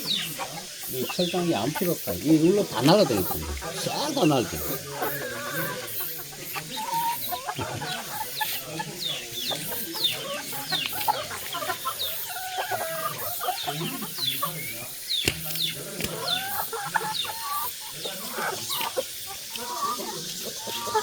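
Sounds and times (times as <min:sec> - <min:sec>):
chickens clucking: 0:00.0 - 0:21.0
high falling chirps: 0:00.9 - 0:06.0
sharp click: 0:15.1 - 0:16.2.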